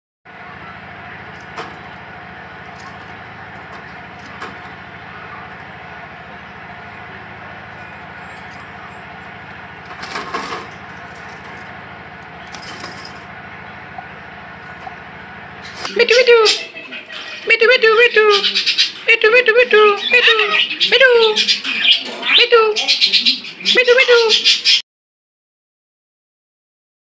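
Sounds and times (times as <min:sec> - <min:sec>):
busy outdoor market din: 0:00.3 - 0:24.8
loud clatter: 0:09.6 - 0:13.4.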